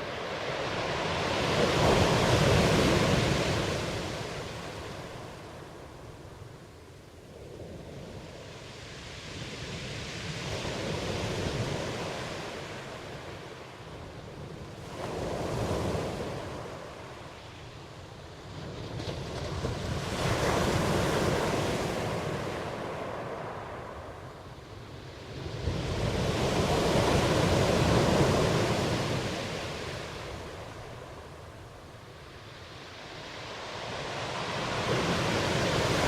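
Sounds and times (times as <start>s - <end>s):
ocean waves breaking: 0.0s - 6.4s, 25.0s - 36.0s.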